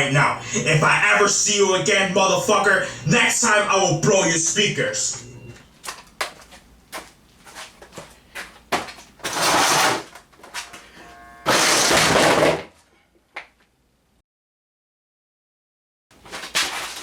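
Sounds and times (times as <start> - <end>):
brief tone: 4.8 - 5.8, 10.6 - 11.6
bursts of harsh noise: 9.2 - 12.6.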